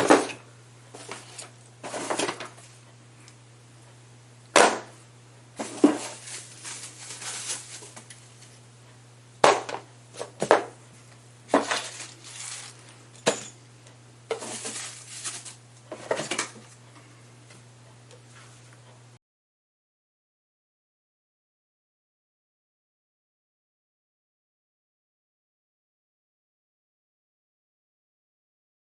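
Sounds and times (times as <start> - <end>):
hard objects knocking and clinking: 13.2 - 13.6.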